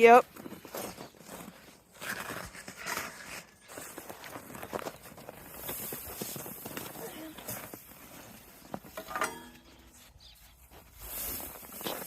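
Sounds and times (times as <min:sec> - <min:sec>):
footsteps crunching: 0:00.0 - 0:12.0
hay rustling: 0:10.0 - 0:12.0.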